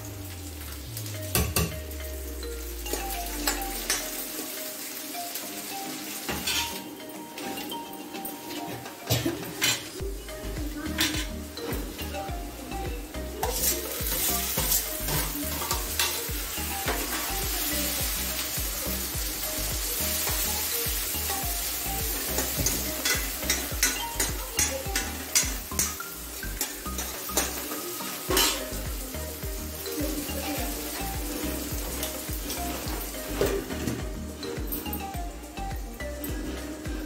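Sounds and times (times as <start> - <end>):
tomatoes sizzling in hot oil: 0.0 - 37.0
spoon scraping and clinking on pan: 6.2 - 10.0, 22.2 - 28.7.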